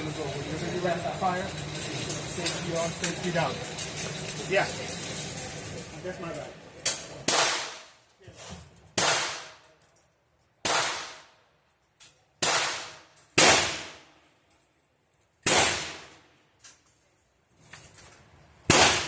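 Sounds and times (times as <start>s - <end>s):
gunshots: 7.2s - 7.9s, 9.0s - 9.6s, 10.6s - 11.3s, 12.4s - 14.0s, 15.4s - 16.1s, 18.7s - 19.0s.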